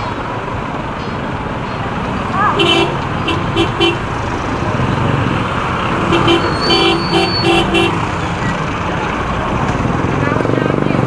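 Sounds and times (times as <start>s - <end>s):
motorcycle and road traffic: 0.0s - 11.0s
vehicle horn short beeps: 6.1s - 8.0s.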